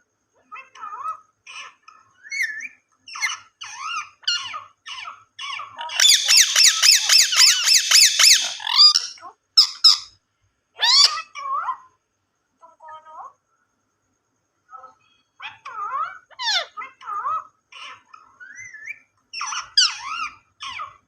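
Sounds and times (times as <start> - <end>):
parakeet rapid chattering: 0.8 - 10.1, 15.4 - 21.0
parakeet squeaky calls: 1.5 - 10.1, 10.8 - 11.6, 15.4 - 16.9, 17.8 - 21.0.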